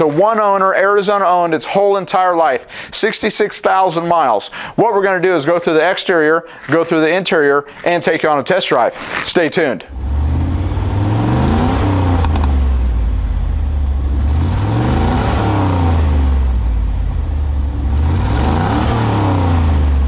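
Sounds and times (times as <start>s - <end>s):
car engine revving: 9.9s - 20.0s.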